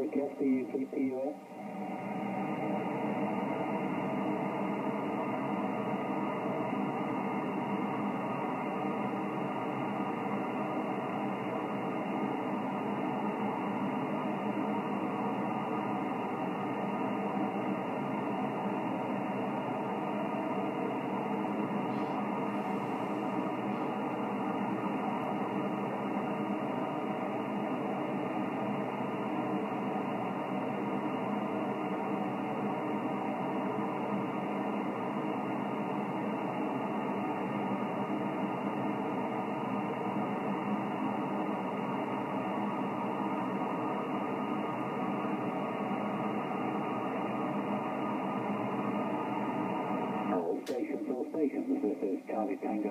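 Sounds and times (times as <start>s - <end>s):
radio band noise hiss: 0.0s - 52.9s.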